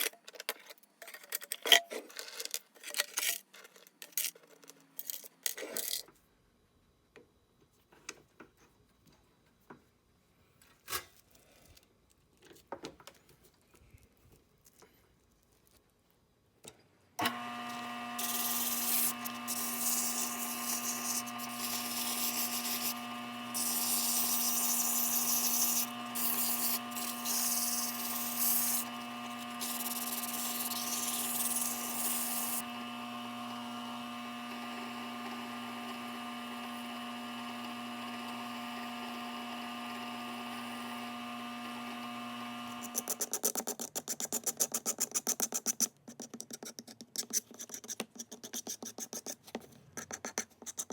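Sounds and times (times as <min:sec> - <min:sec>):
electric power tool motor: 0:17.2 - 0:43.3
rapid scratching strokes: 0:18.2 - 0:32.6
gritty sanding of wood: 0:18.2 - 0:32.7.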